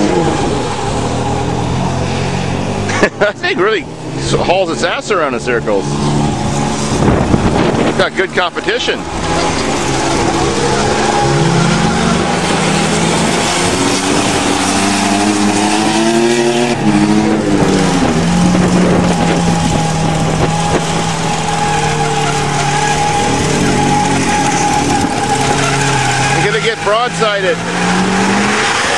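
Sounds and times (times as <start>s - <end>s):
vehicle engines revving: 0.0s - 28.9s.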